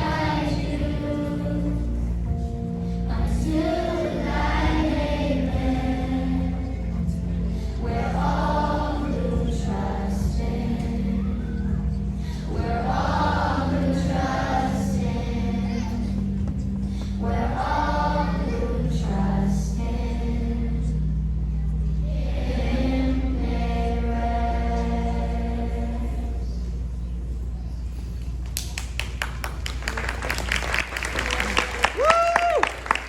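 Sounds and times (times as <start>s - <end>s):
children's choir singing: 0.0s - 21.1s, 22.0s - 26.9s
musical accompaniment: 0.0s - 27.0s.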